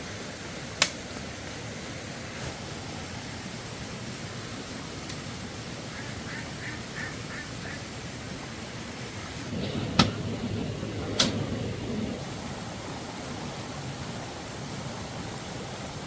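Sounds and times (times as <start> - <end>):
steady rushing hiss: 0.0 - 16.0
ducks quacking: 5.9 - 7.9.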